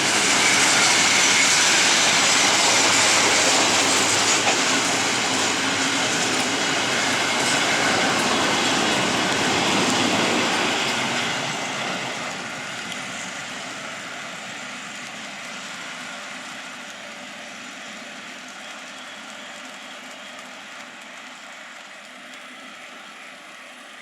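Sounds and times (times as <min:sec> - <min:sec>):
train rumbling on track: 0:00.0 - 0:18.8.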